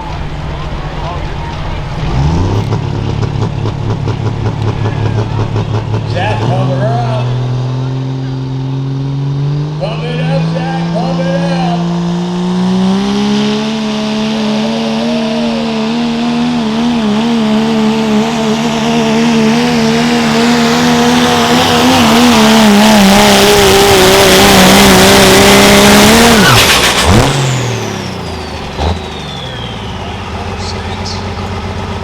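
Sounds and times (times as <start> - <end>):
diesel truck engine revving: 0.0 - 32.0.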